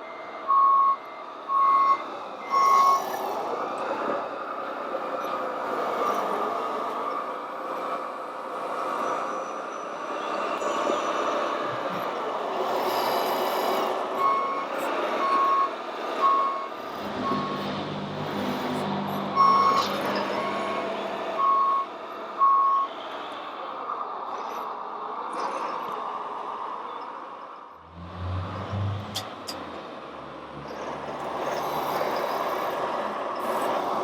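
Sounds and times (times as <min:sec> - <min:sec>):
whine of motors and gears: 0:00.0 - 0:34.0
reversing beeper short beeps: 0:14.2 - 0:22.9
low hum: 0:17.0 - 0:21.3, 0:27.8 - 0:31.4.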